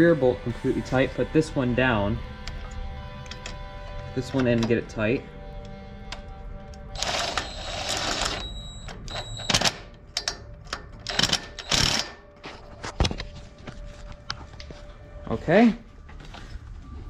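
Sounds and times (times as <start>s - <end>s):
wrench clicking on metal bolt: 9.5s - 12.2s.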